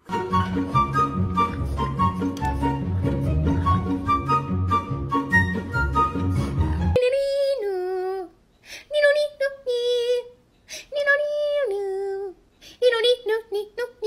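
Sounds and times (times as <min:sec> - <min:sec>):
high voice singing: 0:06.5 - 0:14.0.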